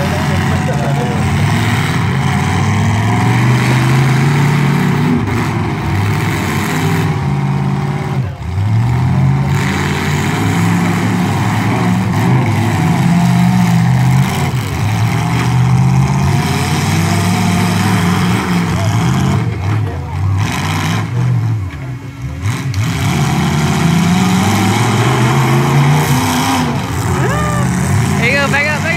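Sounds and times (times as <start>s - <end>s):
truck engines revving: 0.0s - 28.9s.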